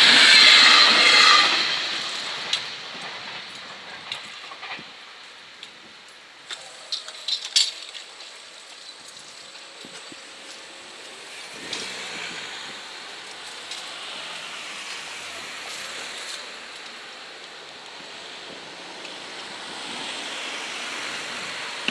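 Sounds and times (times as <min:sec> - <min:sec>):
road traffic rushing: 0:00.0 - 0:03.6, 0:09.5 - 0:21.9.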